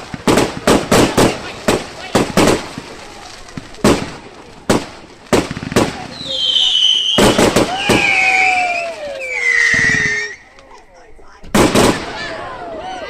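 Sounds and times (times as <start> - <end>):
fireworks bangs: 0.0 - 10.8, 11.4 - 13.0.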